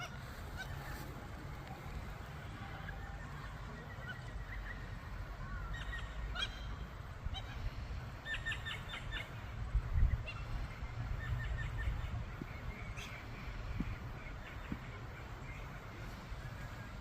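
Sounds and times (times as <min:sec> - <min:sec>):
magpies calling: 0:02.7 - 0:15.8.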